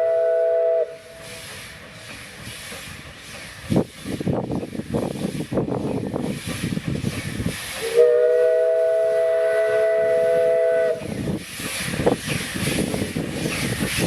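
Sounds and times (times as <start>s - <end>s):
steam locomotive whistle: 0.0s - 1.7s, 7.8s - 11.1s
train running rumble: 0.0s - 14.0s.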